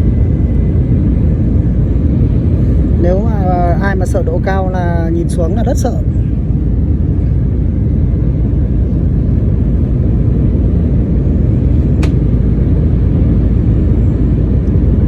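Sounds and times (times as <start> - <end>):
airliner cabin roar: 0.0 - 15.0
short click: 12.0 - 12.2.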